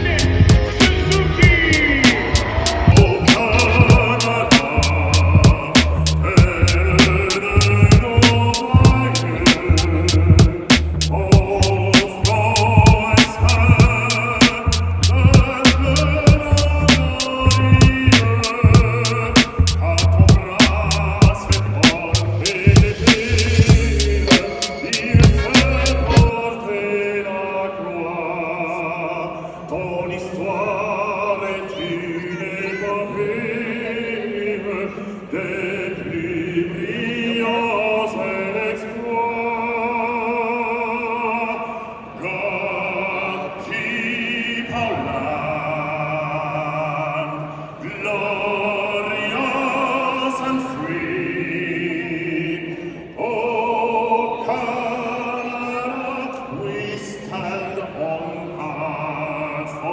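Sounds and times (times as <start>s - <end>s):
musical accompaniment: 0.0s - 26.3s
operatic singing with vibrato: 0.0s - 59.9s.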